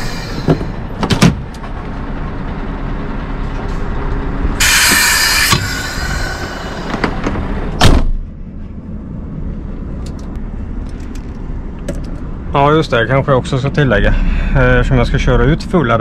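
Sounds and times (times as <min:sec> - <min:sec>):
diesel truck engine running: 0:00.0 - 0:16.0
air hiss burst: 0:04.6 - 0:07.1.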